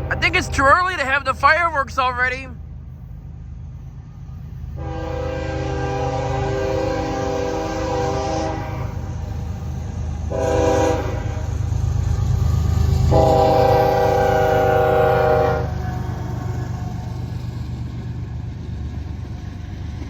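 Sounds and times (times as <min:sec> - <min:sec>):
locomotive air horn blasts: 0:00.0 - 0:01.4, 0:04.8 - 0:09.3, 0:10.3 - 0:11.6, 0:13.1 - 0:16.2
train rumbling past: 0:00.0 - 0:20.0.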